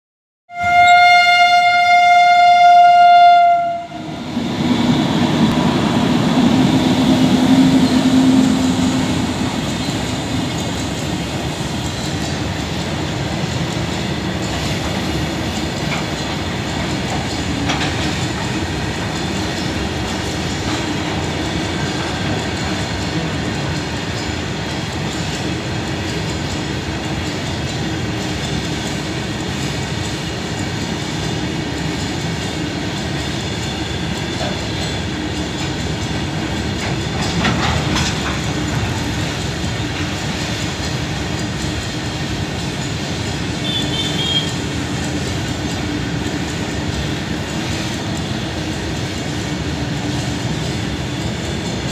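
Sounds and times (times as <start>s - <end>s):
train horn blast: 0.5s - 4.2s, 43.6s - 44.6s
train wagons rumbling over rails: 0.5s - 51.9s.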